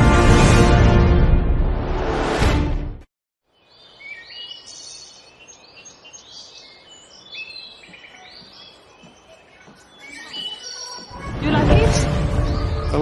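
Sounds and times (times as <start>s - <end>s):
birds chirping and singing: 3.5s - 13.0s.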